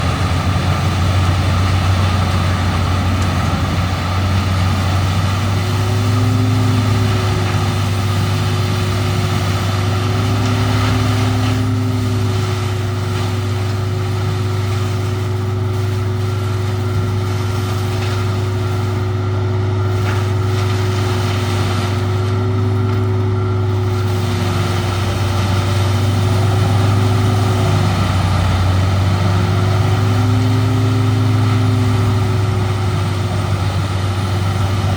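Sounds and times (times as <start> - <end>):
wood chipper engine drone: 0.0 - 34.9.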